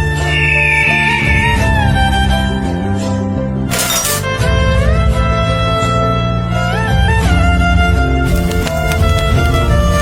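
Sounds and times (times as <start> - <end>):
background music with low bass: 0.0 - 10.0
high note sliding down: 0.1 - 2.2.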